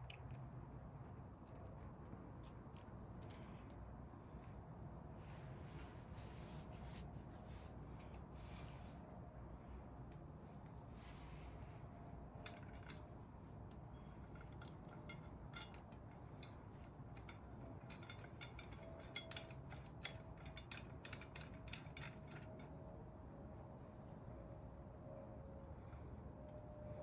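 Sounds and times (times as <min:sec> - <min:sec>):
faint steady hum: 0:00.0 - 0:27.0
metal parts clinking: 0:12.4 - 0:22.7.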